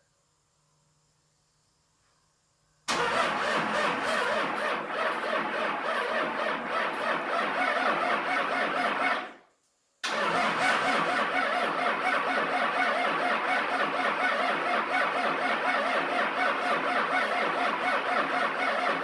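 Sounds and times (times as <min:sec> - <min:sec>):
diesel engine cranking: 0:02.9 - 0:09.3, 0:10.1 - 0:19.0.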